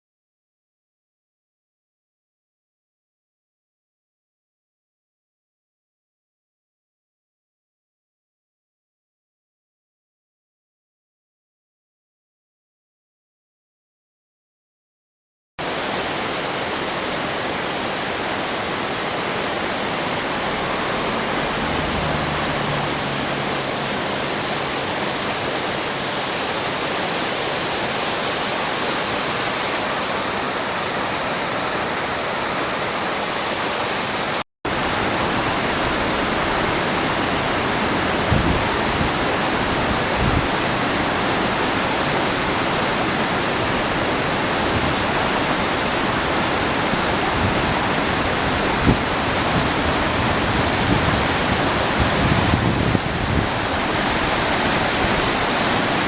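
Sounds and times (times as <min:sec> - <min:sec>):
rushing floodwater: 0:15.6 - 0:56.0.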